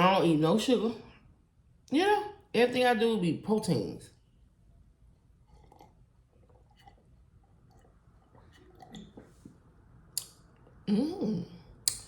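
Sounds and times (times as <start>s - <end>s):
faint chewing sounds: 5.3s - 10.9s.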